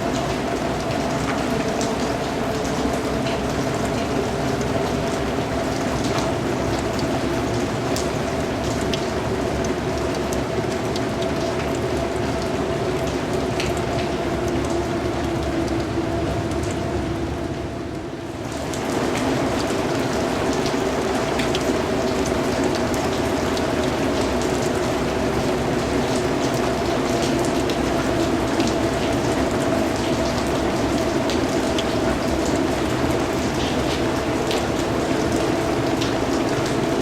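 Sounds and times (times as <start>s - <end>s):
rain patter: 0.0s - 37.0s.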